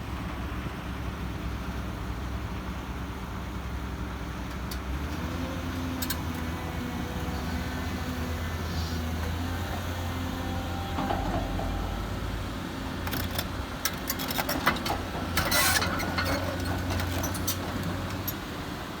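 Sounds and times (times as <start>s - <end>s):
excavator engine droning: 0.0s - 19.0s
metallic clicks and clanks: 11.0s - 18.4s.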